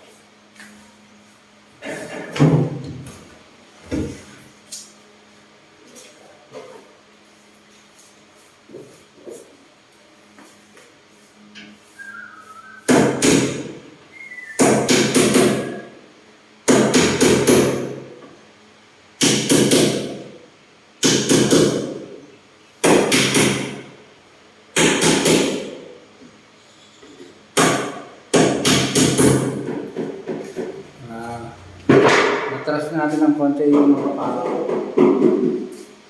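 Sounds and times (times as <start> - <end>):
hammer striking wood: 12.9 - 13.8, 14.6 - 15.8, 16.7 - 18.0, 19.2 - 20.3, 22.8 - 23.9, 24.8 - 25.8, 27.6 - 30.7, 31.9 - 32.5.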